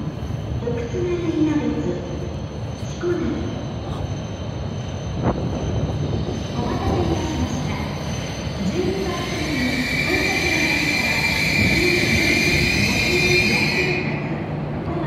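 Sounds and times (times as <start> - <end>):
train rolling and braking: 0.0 - 15.0
high brake squeal: 2.7 - 14.3.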